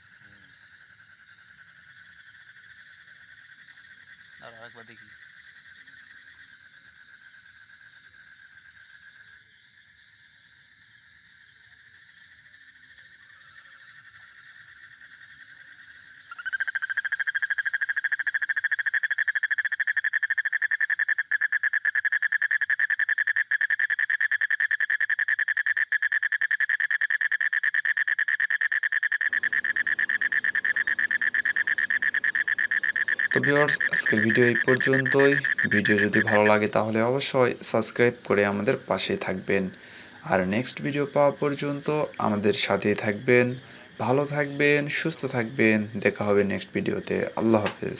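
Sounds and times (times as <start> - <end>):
frog trilling: 12.1 - 47.9.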